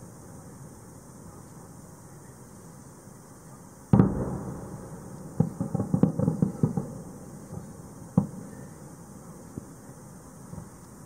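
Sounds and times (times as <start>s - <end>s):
firework shells bursting: 3.9s - 8.8s.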